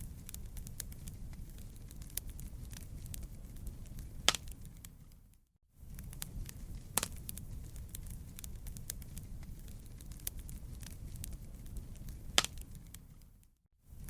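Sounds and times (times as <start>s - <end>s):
campfire crackling: 0.0s - 14.0s
wood pops and snaps: 12.4s - 12.6s.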